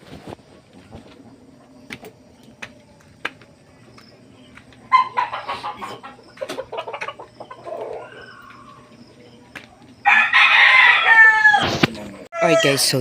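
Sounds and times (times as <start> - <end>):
chickens clucking: 0.1 - 13.0
rooster crowing: 4.9 - 6.2, 6.9 - 9.1, 10.0 - 13.0.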